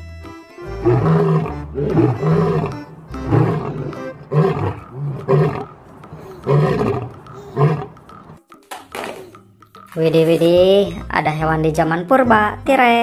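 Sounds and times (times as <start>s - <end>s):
background music: 0.0s - 13.0s
lion roaring: 0.8s - 8.0s.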